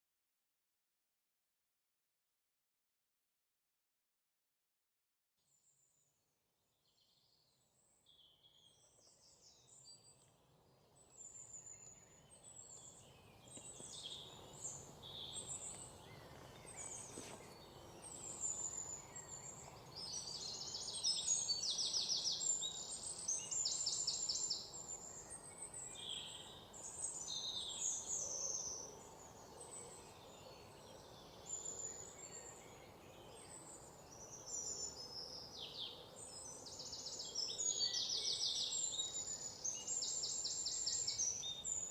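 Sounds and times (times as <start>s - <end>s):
faint steady background noise: 7.8s - 41.9s
birds chirping and trilling: 10.8s - 41.9s.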